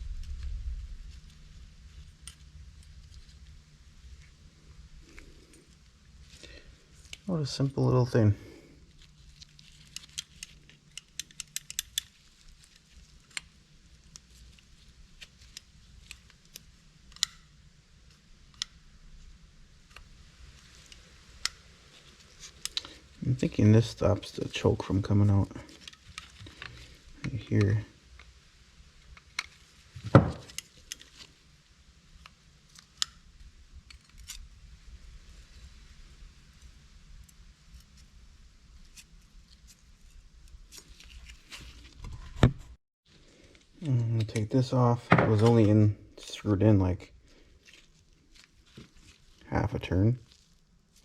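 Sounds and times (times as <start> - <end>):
small metal parts clicking: 9.4 - 13.5.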